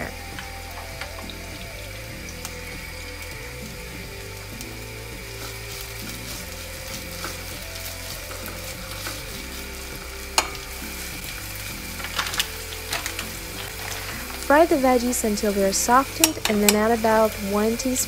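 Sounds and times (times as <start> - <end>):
vegetables sizzling in oil: 0.0 - 18.0
spatula knocking and scraping pan: 10.3 - 11.0.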